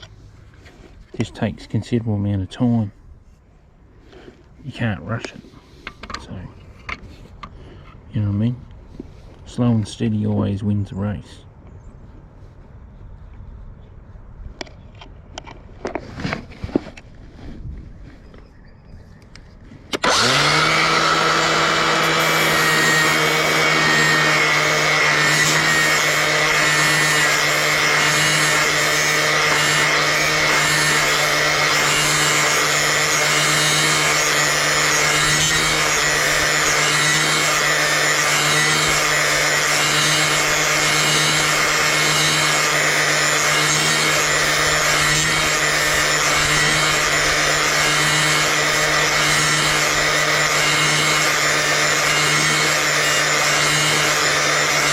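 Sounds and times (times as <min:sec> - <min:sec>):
angle grinder running: 0:19.9 - 0:54.9
grinding disc hissing on blade: 0:20.0 - 0:54.9.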